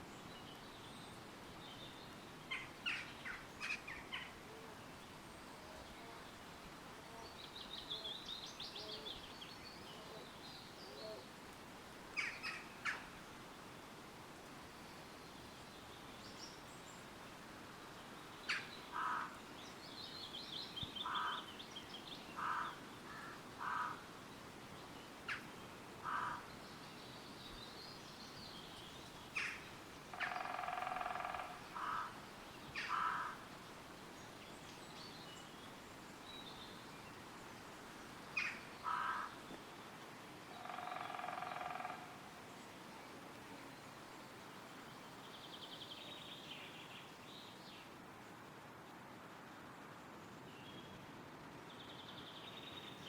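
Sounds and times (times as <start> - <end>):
wind through trees: 0.0 - 53.0
songbird trill: 18.3 - 23.9, 25.1 - 33.5, 40.6 - 47.9
birds calling: 21.0 - 21.5.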